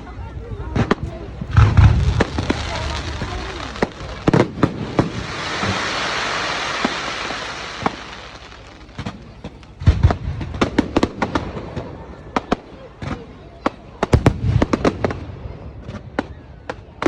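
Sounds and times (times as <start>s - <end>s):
fireworks bangs and cracks: 0.7s - 17.0s
fireworks hiss: 1.4s - 10.8s.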